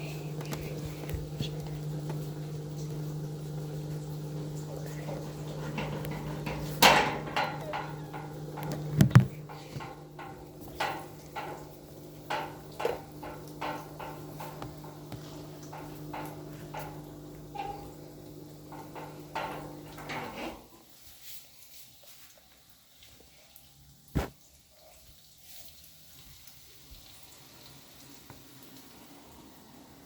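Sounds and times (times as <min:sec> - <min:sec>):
hard objects knocking and clattering: 0:05.4 - 0:20.6.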